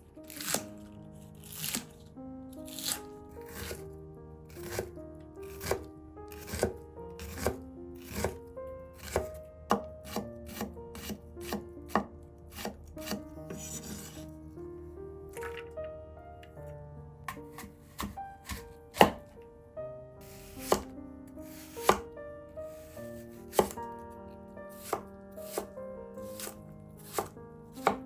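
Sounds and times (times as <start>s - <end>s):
soft background music: 0.0s - 28.0s
knife chopping on cutting board: 0.3s - 1.9s, 2.7s - 3.8s, 4.6s - 4.9s, 5.5s - 8.4s, 9.0s - 14.2s, 17.3s - 19.3s, 20.2s - 20.9s, 21.5s - 22.1s, 22.7s - 23.8s, 24.7s - 28.0s
knife scraping board: 1.4s - 1.9s, 2.7s - 3.8s, 4.6s - 4.9s, 6.4s - 8.4s, 9.0s - 11.6s, 12.5s - 14.3s, 17.3s - 19.2s, 20.2s - 20.9s, 21.5s - 22.0s, 23.5s - 23.8s, 24.7s - 25.7s, 26.3s - 28.0s.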